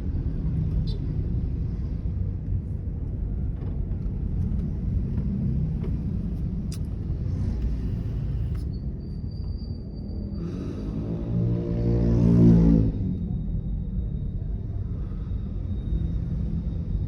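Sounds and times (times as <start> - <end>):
road and engine rumble: 0.0 - 17.0.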